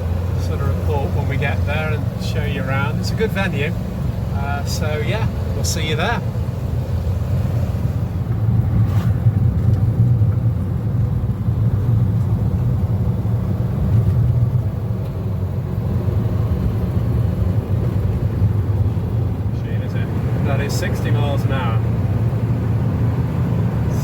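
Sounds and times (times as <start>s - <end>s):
road noise: 0.0s - 24.0s
van engine low rumble: 0.0s - 24.0s.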